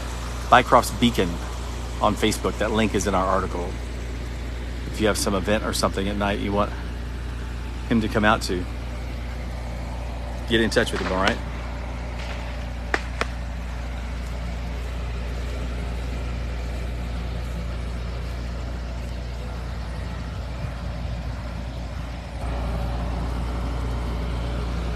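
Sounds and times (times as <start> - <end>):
low engine hum: 0.0 - 24.9
sharp clicks: 10.8 - 14.8.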